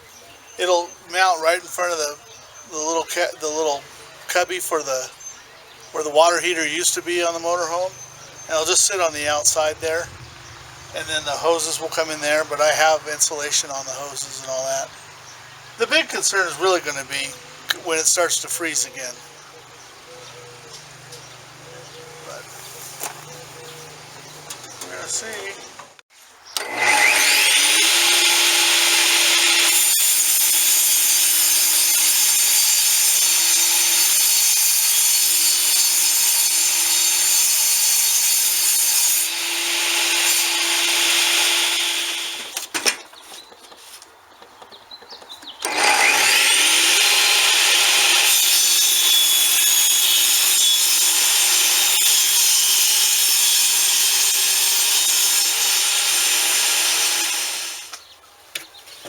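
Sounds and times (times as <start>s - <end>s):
electric power saw cutting wood: 26.6s - 42.6s, 45.6s - 58.0s.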